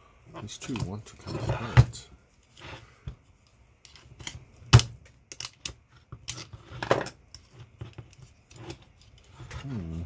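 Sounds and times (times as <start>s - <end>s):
metal parts clicking and clacking: 5.3s - 7.4s.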